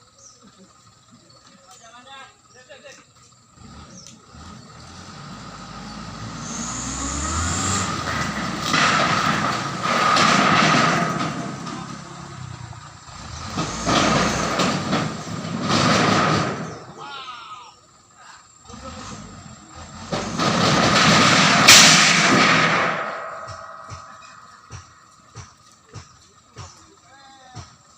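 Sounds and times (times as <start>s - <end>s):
truck engine: 0.0s - 27.9s
metal beams scraping: 4.6s - 17.0s, 18.9s - 25.2s.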